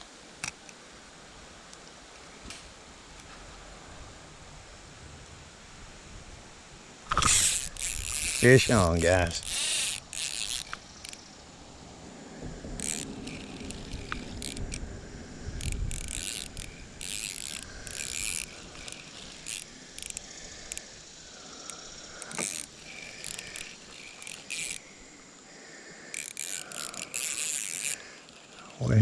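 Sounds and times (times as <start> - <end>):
fishing reel whirring: 7.1 - 11.7, 12.7 - 28.8.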